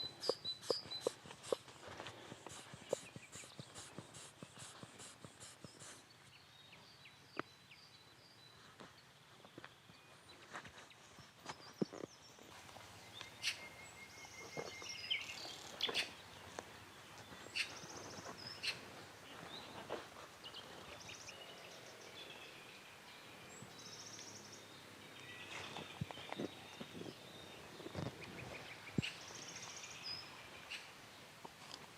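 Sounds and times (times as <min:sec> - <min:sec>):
birds chirping: 0:00.0 - 0:31.0
faint outdoor background: 0:00.0 - 0:31.9.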